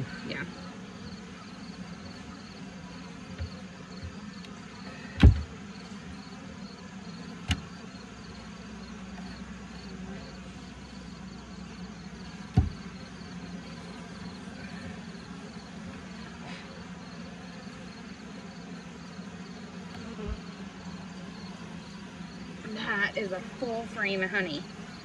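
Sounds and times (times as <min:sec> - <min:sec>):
honeybees buzzing: 0:00.0 - 0:25.0
sharp knocks on hive frames: 0:02.1 - 0:06.4, 0:07.2 - 0:08.1, 0:11.8 - 0:13.3, 0:19.8 - 0:20.6.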